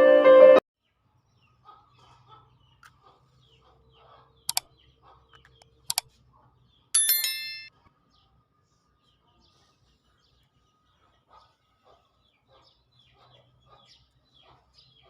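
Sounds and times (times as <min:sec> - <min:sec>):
bell-like ding: 0:07.0 - 0:07.7.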